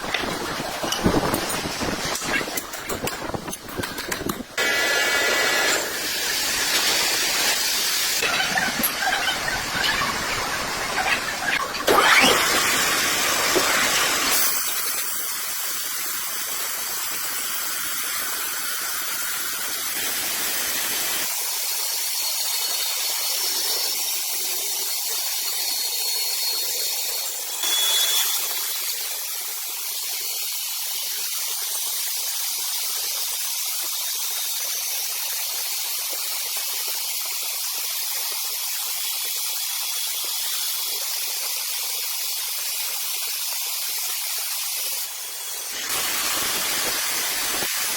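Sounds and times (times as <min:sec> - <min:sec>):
saw cutting log hiss: 0:44.2 - 0:47.9.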